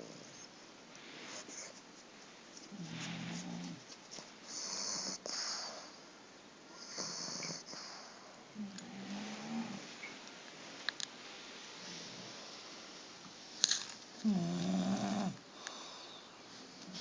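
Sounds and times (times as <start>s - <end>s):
dog snoring: 4.5s - 5.7s, 6.7s - 9.9s, 14.2s - 15.4s.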